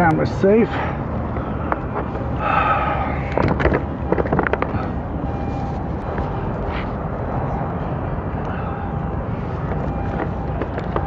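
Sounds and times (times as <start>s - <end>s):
steady low rumble: 0.0s - 11.0s
sharp knocks and clatters: 3.3s - 4.8s, 9.7s - 11.0s.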